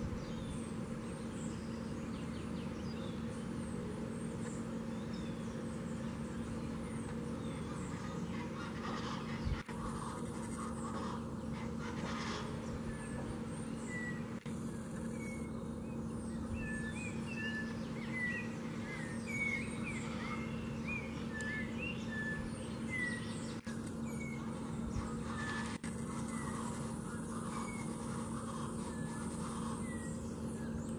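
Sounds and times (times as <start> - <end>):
steady low hum: 0.0 - 30.9
birds chirping and whistling: 4.4 - 30.9.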